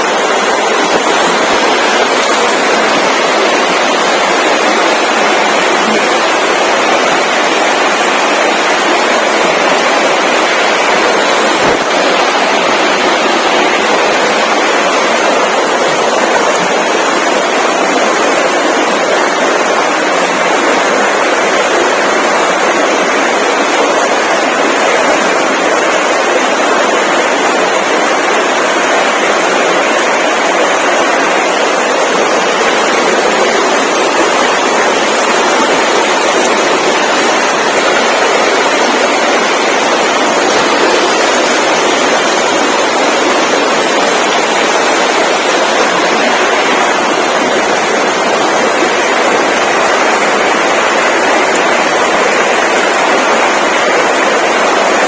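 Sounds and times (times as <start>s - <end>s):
loud rushing noise: 0.0s - 24.6s.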